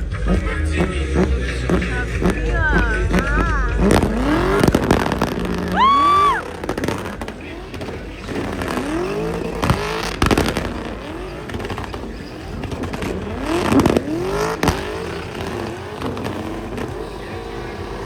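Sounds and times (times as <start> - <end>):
car engine revving: 0.0 - 18.0
exhaust bangs: 0.0 - 18.0.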